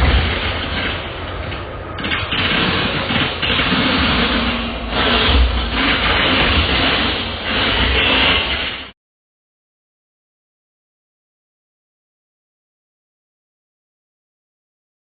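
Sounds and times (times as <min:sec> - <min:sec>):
train rumbling past on rails: 0:00.0 - 0:08.9.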